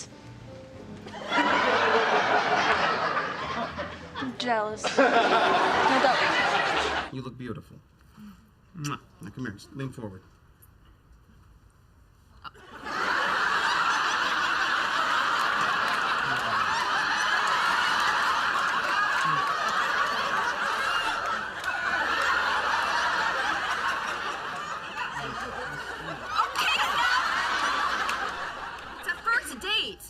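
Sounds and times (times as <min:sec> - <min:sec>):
studio audience laughing: 0:01.1 - 0:07.1, 0:12.6 - 0:29.6.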